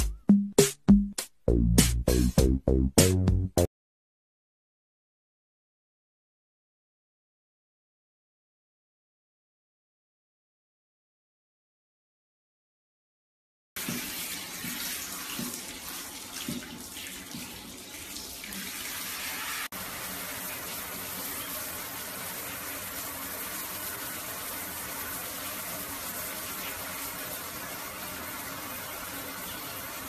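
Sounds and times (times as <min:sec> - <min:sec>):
shower head spraying water: 0:13.8 - 0:30.0.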